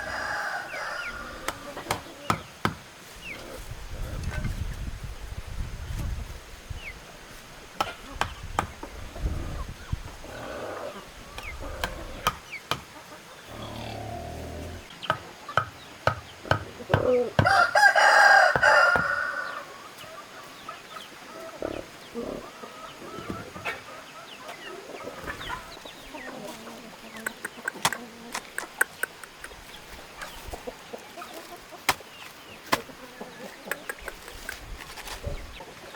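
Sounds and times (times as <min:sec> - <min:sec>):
rooster crowing: 0:00.0 - 0:01.8, 0:16.9 - 0:19.8
chickens clucking: 0:00.0 - 0:04.8, 0:07.6 - 0:35.9
sharp taps and knocks: 0:11.8 - 0:12.9, 0:27.3 - 0:29.6.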